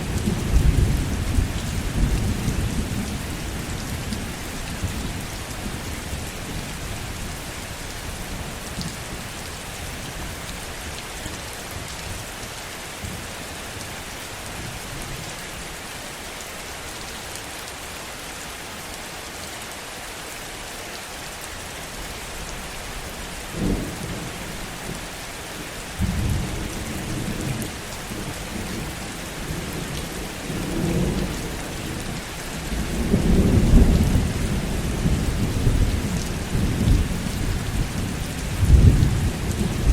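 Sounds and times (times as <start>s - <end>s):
rolling thunder rumbles: 0.0s - 6.7s, 26.0s - 39.9s
heavy rain falling: 0.0s - 39.9s.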